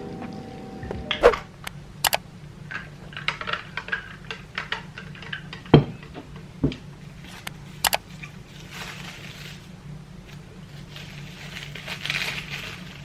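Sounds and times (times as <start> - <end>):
low steady hum: 0.0 - 3.3.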